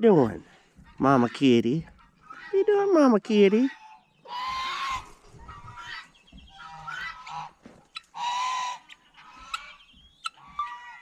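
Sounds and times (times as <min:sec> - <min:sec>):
poultry calling: 0:00.2 - 0:11.0
chirps: 0:05.3 - 0:08.1, 0:08.8 - 0:10.9.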